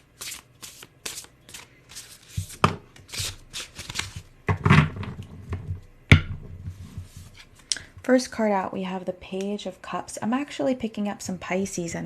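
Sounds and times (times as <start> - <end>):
cards rustling and sliding: 0.0 - 4.3.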